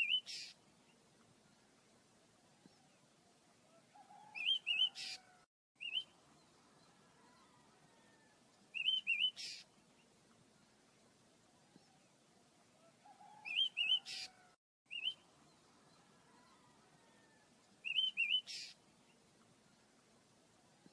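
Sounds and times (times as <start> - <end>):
small bird chirping: 8.7 - 9.7.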